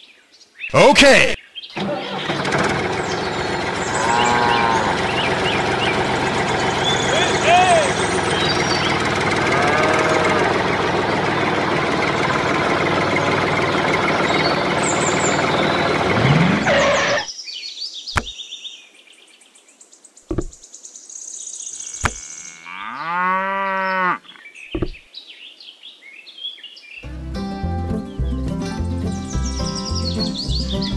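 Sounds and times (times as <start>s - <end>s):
dense engine-like noise: 1.8s - 17.3s
cow mooing: 3.8s - 5.8s, 9.3s - 10.9s, 21.9s - 24.4s
sharp knocks: 18.2s - 18.4s, 20.3s - 20.6s, 24.7s - 25.0s.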